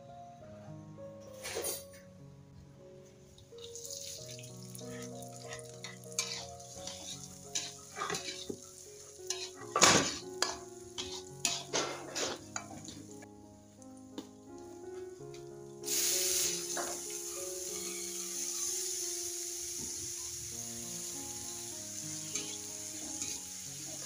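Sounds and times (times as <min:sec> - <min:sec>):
spatula scraping and clanking wok: 0:01.4 - 0:02.0, 0:05.4 - 0:13.3, 0:22.2 - 0:24.0
shallots sizzling in hot oil: 0:03.4 - 0:13.4, 0:15.8 - 0:24.0.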